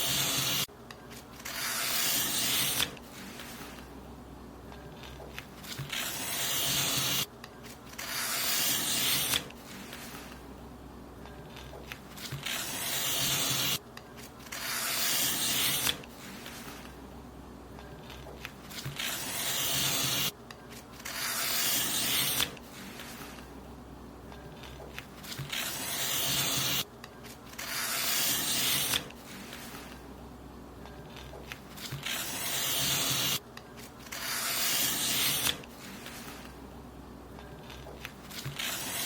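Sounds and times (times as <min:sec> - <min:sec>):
paper being cut: 0:00.0 - 0:00.7, 0:01.4 - 0:03.8, 0:05.0 - 0:07.3, 0:07.9 - 0:10.4, 0:11.6 - 0:13.8, 0:14.4 - 0:16.9, 0:18.0 - 0:20.3, 0:21.0 - 0:23.4, 0:24.6 - 0:26.8, 0:27.5 - 0:30.0, 0:31.1 - 0:33.4, 0:34.0 - 0:36.5, 0:37.6 - 0:39.0.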